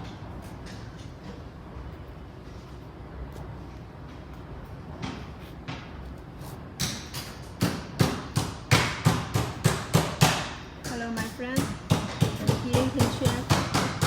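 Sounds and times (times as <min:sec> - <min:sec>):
fast sharp knocks: 0:06.8 - 0:14.0.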